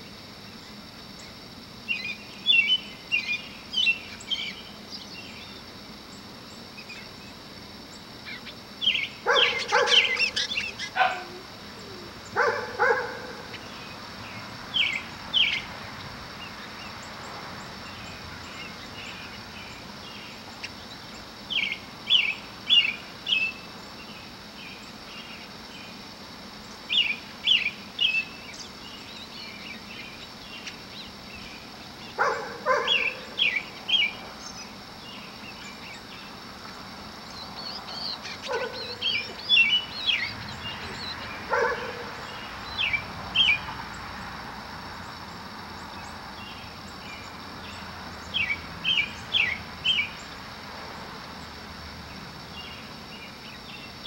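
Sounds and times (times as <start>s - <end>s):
small birds chirping: 0.0s - 44.4s, 45.0s - 54.0s
road traffic hiss: 0.0s - 54.0s.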